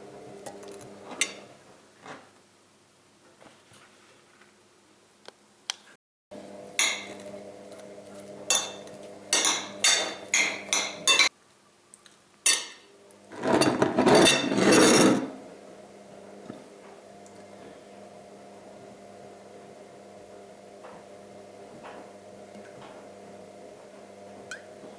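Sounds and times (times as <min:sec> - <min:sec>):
dishes and utensils clinking: 0:08.5 - 0:11.3, 0:13.4 - 0:15.4.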